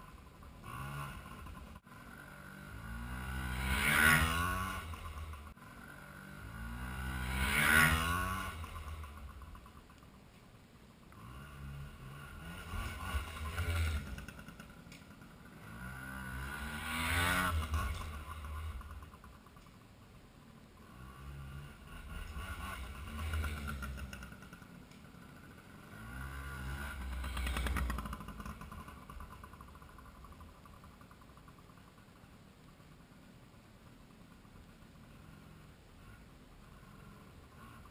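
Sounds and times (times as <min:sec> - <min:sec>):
pit bike engine revving: 0:00.0 - 0:10.0, 0:11.1 - 0:19.8, 0:20.5 - 0:32.1.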